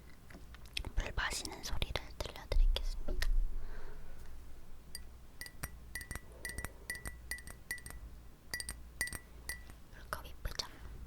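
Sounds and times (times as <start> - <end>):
taps on glass ringing: 5.0 - 9.8.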